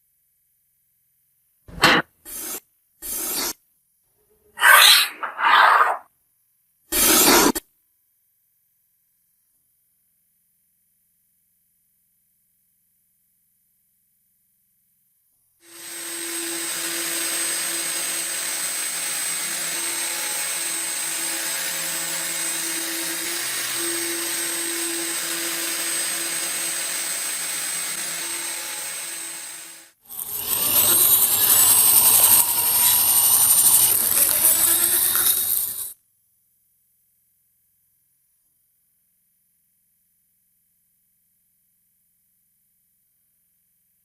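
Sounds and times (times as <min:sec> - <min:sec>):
power tool working against metal: 0:01.7 - 0:03.6, 0:15.7 - 0:36.0
electric power tool humming: 0:15.7 - 0:35.9.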